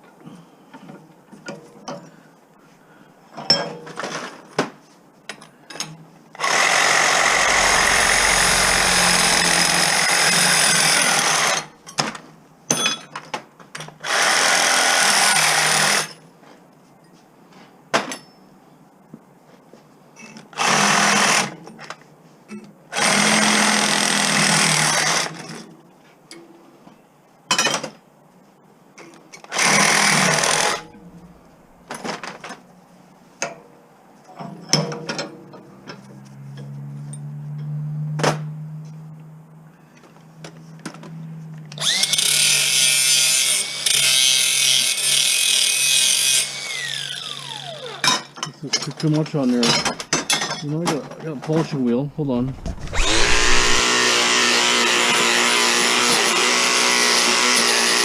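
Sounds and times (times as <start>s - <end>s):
power tool running: 6.4s - 11.7s, 41.8s - 44.7s, 46.0s - 48.2s, 52.2s - 58.0s.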